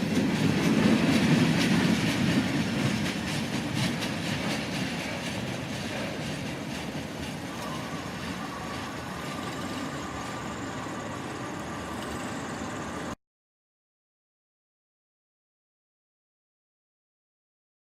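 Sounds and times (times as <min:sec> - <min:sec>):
freight train rumbling past: 0:00.0 - 0:13.2
train wheel clatter: 0:00.0 - 0:13.2.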